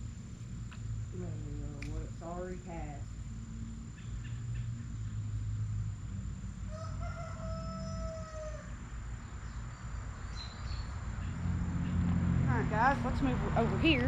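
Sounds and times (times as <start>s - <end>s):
low steady rumble: 0.0s - 14.0s
rooster crowing: 6.5s - 9.0s.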